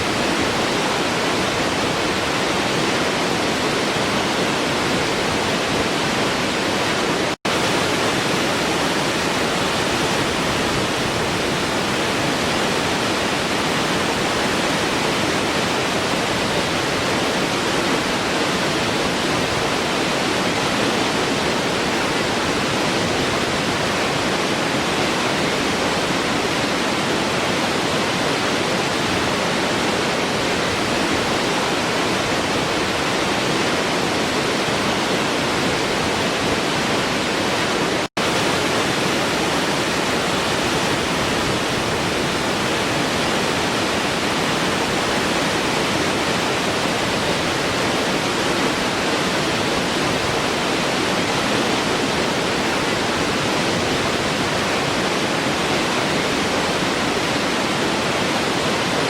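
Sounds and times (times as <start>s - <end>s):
waterfall roaring: 0.0s - 59.0s.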